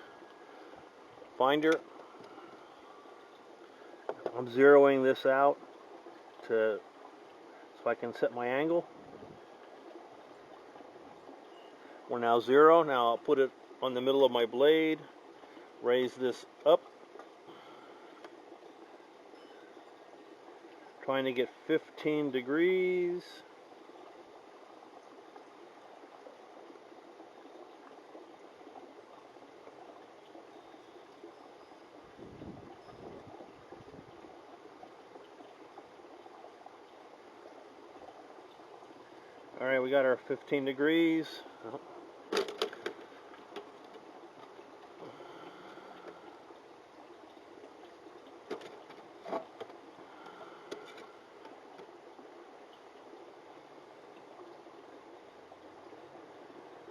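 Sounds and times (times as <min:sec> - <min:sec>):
faint background hiss: 0:00.0 - 0:56.9.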